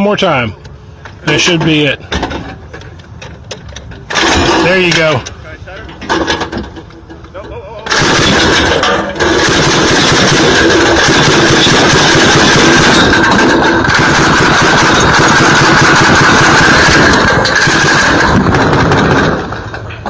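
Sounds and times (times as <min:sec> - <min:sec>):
machine gun automatic fire: 0:04.1 - 0:04.9, 0:07.9 - 0:19.7.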